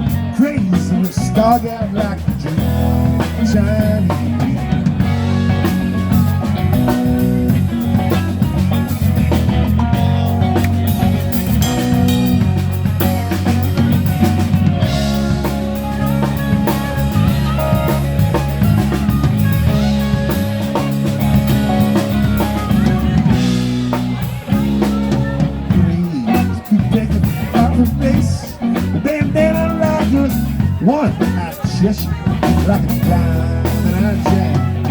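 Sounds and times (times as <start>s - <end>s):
drum kit: 0.0s - 34.9s
electric bass: 0.0s - 34.9s
guitar: 0.0s - 34.9s.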